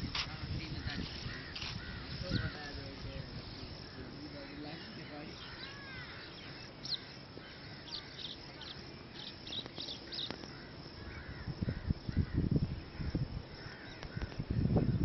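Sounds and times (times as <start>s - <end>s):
wind buffeting microphone: 0.0s - 5.5s, 9.4s - 15.0s
birds chirping: 0.5s - 15.0s.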